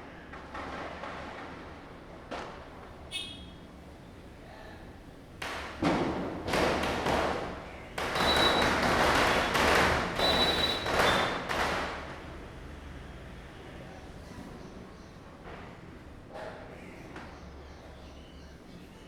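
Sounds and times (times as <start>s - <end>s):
firecrackers bursting: 0.0s - 3.1s, 5.4s - 12.5s.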